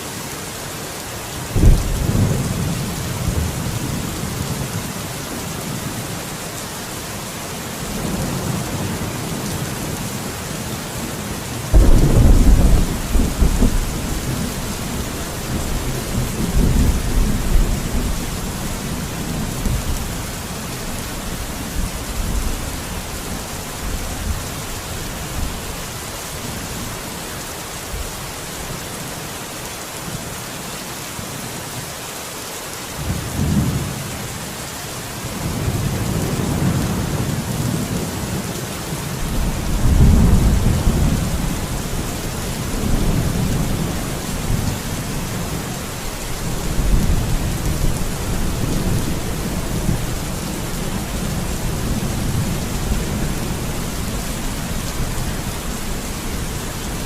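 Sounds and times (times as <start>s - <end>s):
steady rain: 0.0s - 57.0s
rolling thunder: 1.5s - 4.2s, 11.7s - 20.4s, 39.3s - 45.7s.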